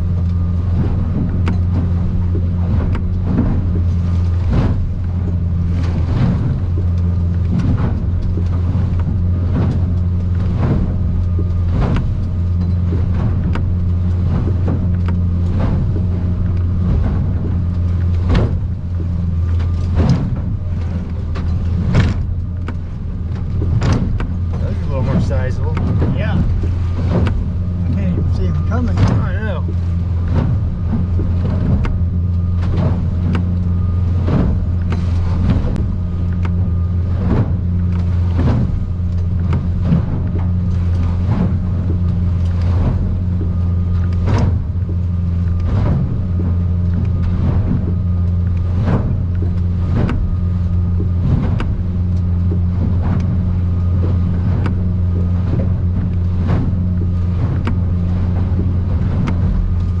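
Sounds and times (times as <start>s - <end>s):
hull slapping against waves: 0.0s - 60.0s
outboard engine droning: 0.0s - 60.0s.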